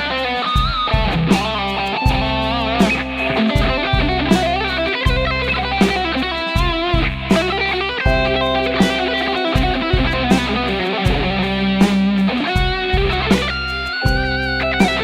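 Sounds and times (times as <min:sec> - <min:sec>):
drum hits on steady beat: 0:00.6 - 0:15.0
electric guitar lead with bends: 0:01.9 - 0:15.0
bass notes: 0:02.1 - 0:06.4, 0:07.0 - 0:12.4, 0:13.0 - 0:15.0.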